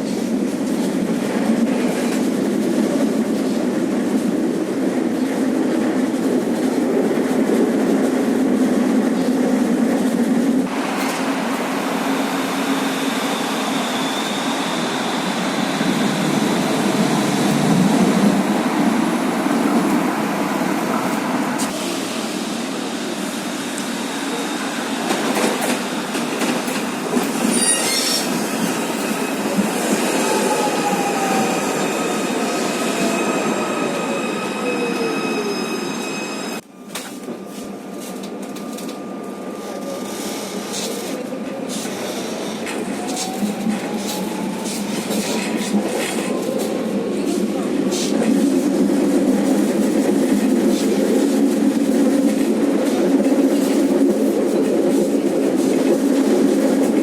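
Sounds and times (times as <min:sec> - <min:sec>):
tram motor whine: 0:10.7 - 0:18.6
tram wheels squealing: 0:12.0 - 0:17.5, 0:23.9 - 0:37.6.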